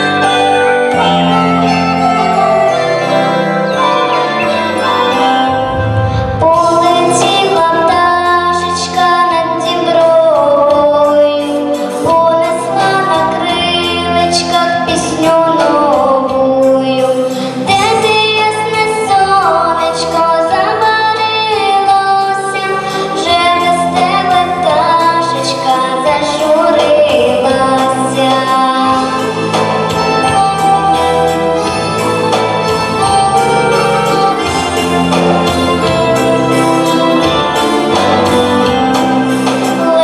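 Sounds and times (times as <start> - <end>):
instrumental backing track: 0.0 - 40.0
woman singing: 4.4 - 29.6, 34.4 - 40.0.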